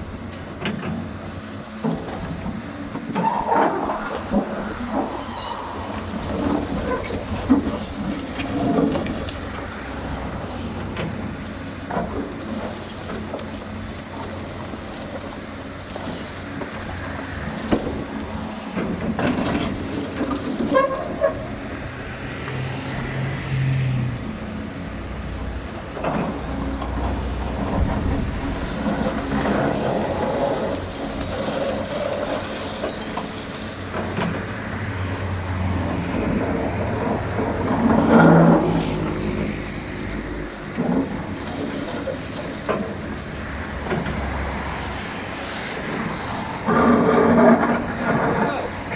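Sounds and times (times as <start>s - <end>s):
excavator diesel engine: 0.0s - 48.9s
machine knocks and clanks: 0.2s - 5.2s, 17.5s - 21.6s, 25.8s - 44.4s.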